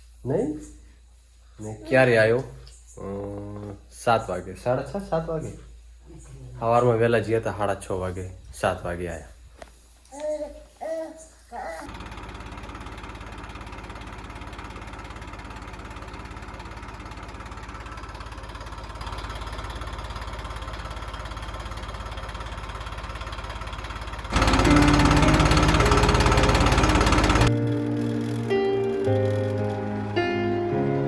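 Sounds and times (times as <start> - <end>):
tractor diesel engine running: 11.9 - 31.0
loud music: 24.4 - 31.0.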